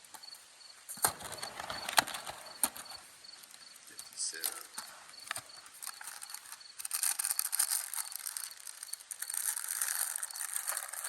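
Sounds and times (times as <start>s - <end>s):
fish sizzling over campfire: 3.4s - 11.0s.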